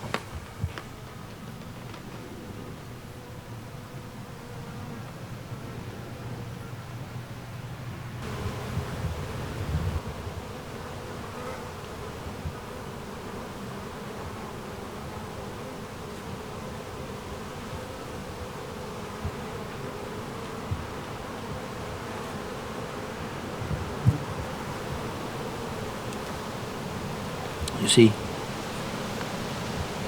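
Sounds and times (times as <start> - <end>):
insects buzzing: 0.0 - 30.0
wind on microphone: 8.2 - 10.6, 23.4 - 25.2.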